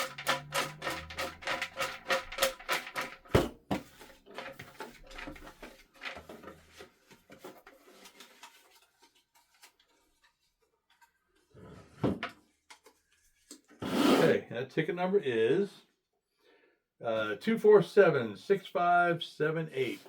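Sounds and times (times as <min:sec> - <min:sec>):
drum-backed background music: 0:03.4 - 0:03.7.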